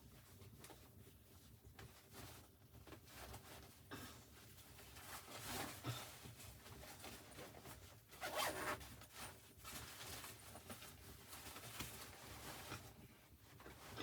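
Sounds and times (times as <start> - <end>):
faint handling noise of clothing: 0.0 - 14.0
zip rasp: 8.2 - 8.8.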